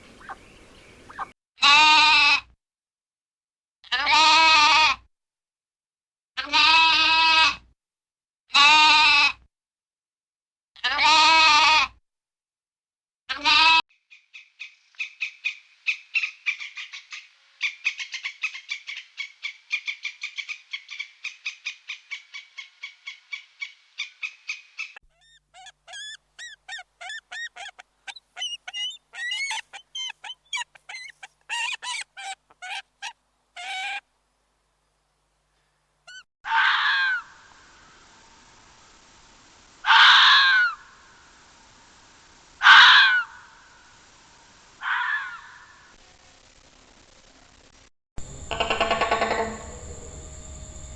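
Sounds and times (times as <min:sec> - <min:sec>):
rapid repeated bird chirps: 0:00.0 - 0:01.3, 0:14.0 - 0:34.0, 0:36.1 - 0:36.3
loud harsh animal calls: 0:25.1 - 0:34.0, 0:36.1 - 0:37.3, 0:39.8 - 0:40.8, 0:42.6 - 0:43.5, 0:44.8 - 0:46.0, 0:48.2 - 0:50.2
pitch-bending chirps: 0:25.2 - 0:32.8, 0:48.2 - 0:50.7.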